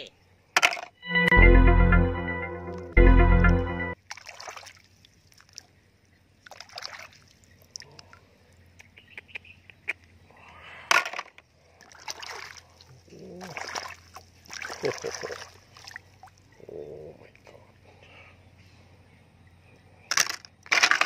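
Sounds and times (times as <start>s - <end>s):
shallow water splashing: 4.0s - 5.7s, 6.4s - 7.8s, 11.8s - 16.5s.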